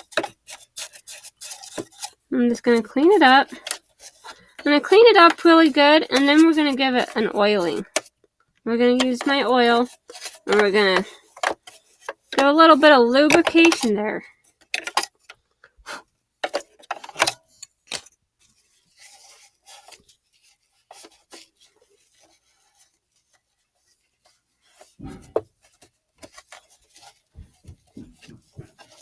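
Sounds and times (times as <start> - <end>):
brush rubbing and scraping: 0.0 - 8.1, 8.8 - 13.9, 18.5 - 29.0
light clicks and knocks: 27.4 - 29.0.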